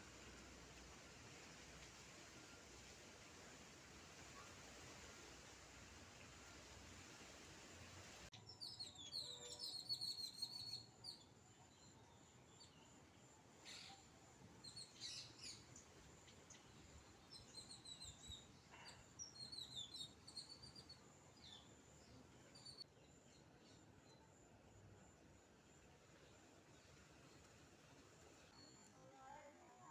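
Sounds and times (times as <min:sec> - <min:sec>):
songbirds chirping: 0:03.6 - 0:29.8.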